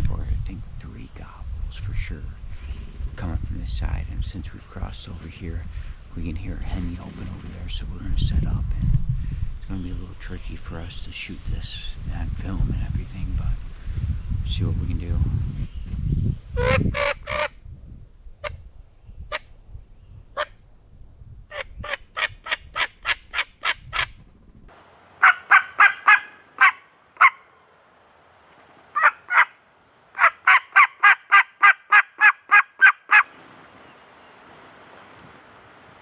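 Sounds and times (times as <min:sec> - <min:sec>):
turkey yelps: 0:25.2 - 0:27.5, 0:29.0 - 0:29.6, 0:30.2 - 0:33.3.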